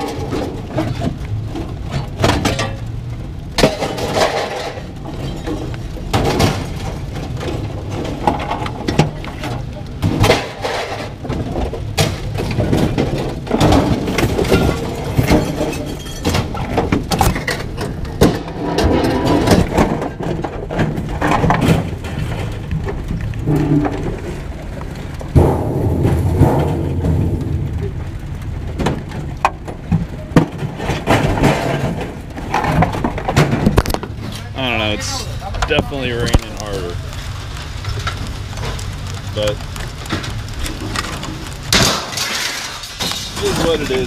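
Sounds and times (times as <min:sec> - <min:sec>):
low rumble: 0:00.0 - 0:41.8
scrap metal clanking: 0:03.6 - 0:22.6, 0:30.4 - 0:36.9, 0:40.2 - 0:44.0.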